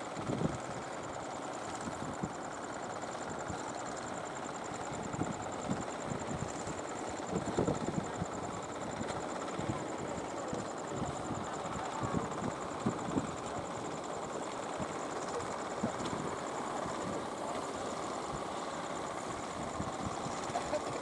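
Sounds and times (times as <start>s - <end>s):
boat engines running: 7.0s - 21.0s.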